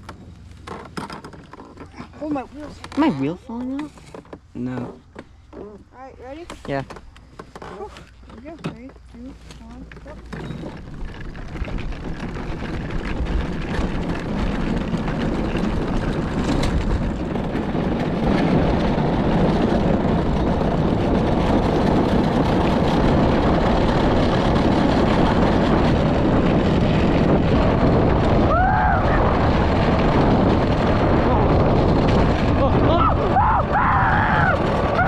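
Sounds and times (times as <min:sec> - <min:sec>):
cart wheels rolling: 0:00.0 - 0:35.0
wind on microphone: 0:07.8 - 0:35.0.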